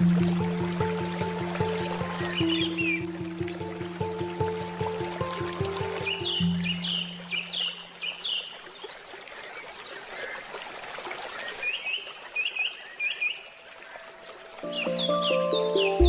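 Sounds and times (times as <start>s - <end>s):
handpan notes: 0.0s - 7.6s, 14.7s - 16.0s
bird chirping: 0.0s - 8.5s
stream trickling: 0.0s - 16.0s.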